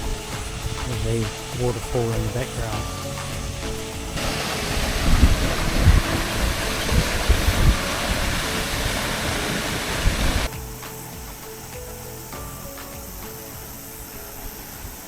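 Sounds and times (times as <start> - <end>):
wind buffeting microphone: 0.0 - 10.5
waterfall rushing: 0.0 - 15.0.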